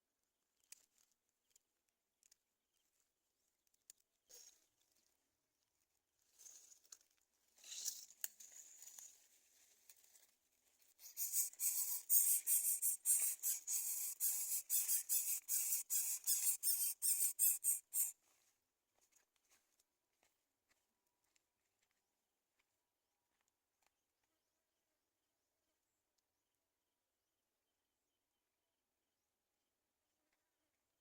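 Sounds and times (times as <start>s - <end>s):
nestlings making raspy calls: 11.1s - 18.1s.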